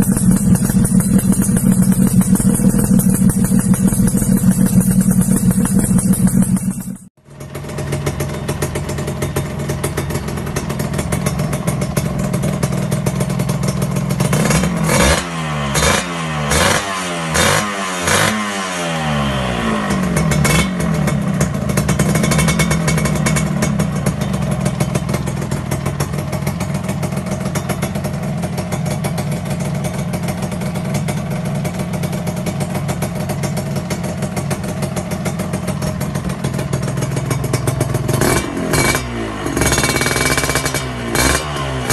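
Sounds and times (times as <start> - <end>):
motorcycle throttle blips: 0.0 - 14.3
motorcycle engine idling: 0.0 - 15.2, 19.4 - 41.9.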